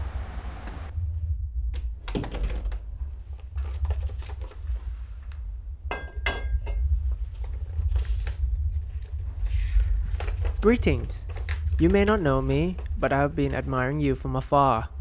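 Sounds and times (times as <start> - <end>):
steady low hum: 0.0 - 15.0
glass clinks: 5.9 - 6.8.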